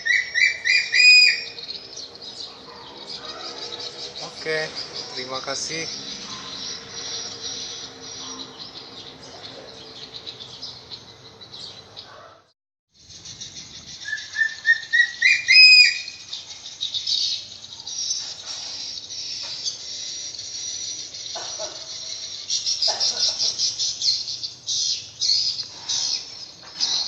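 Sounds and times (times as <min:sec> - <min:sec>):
bird calling rising notes: 0:00.0 - 0:02.3, 0:13.0 - 0:16.4
fast-pulsing insect chorus: 0:00.7 - 0:08.9, 0:15.9 - 0:26.6.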